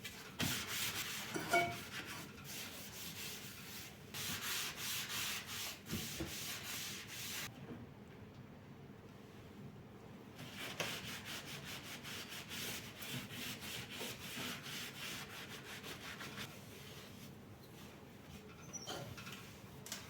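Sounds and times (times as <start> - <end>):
rubbing on hard surface: 0.0 - 7.5, 10.4 - 17.4.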